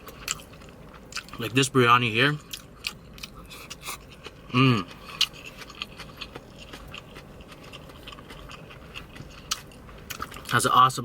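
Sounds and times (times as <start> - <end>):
person chewing food: 0.0 - 10.7.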